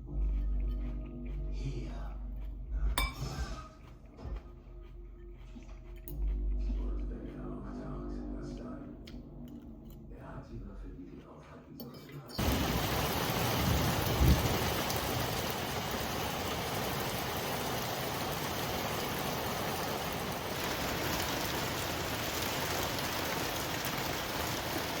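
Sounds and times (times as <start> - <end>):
steady rain falling: 12.4 - 25.0.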